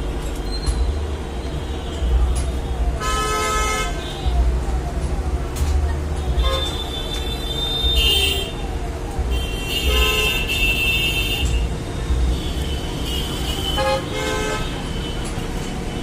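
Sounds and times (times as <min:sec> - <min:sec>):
low traffic rumble: 0:00.0 - 0:16.0
vehicle horns honking: 0:03.0 - 0:04.2, 0:06.4 - 0:08.6, 0:09.3 - 0:11.7, 0:12.4 - 0:15.3.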